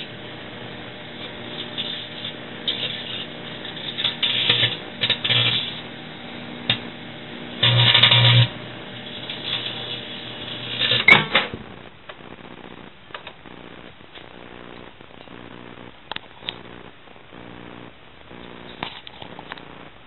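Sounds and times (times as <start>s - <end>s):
microwave oven humming: 0.0s - 20.0s
sharp crack of sparking: 1.1s - 5.9s
phone crackling and arcing: 1.2s - 5.9s, 7.6s - 20.0s.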